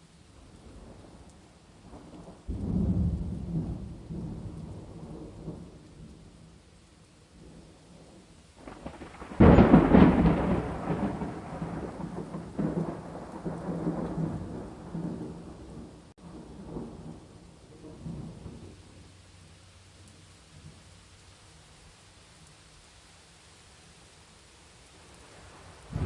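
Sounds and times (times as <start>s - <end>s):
steady rain: 0.0s - 26.0s
thunder rumbling: 1.8s - 6.5s, 7.3s - 19.1s, 25.1s - 26.0s.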